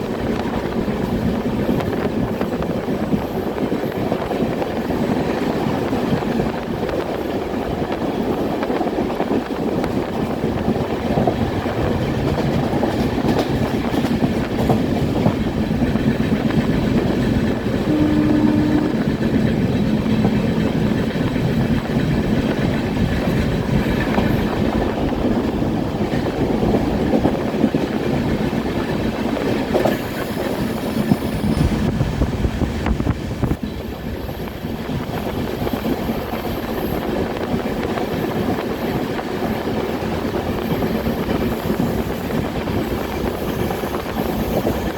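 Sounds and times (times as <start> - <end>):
train rumbling on rails: 0.0 - 44.9
steady tone: 17.9 - 19.4.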